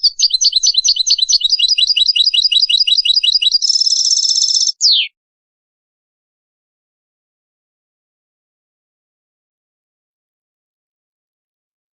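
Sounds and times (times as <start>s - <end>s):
finch song with buzzy trill: 0.0s - 5.1s.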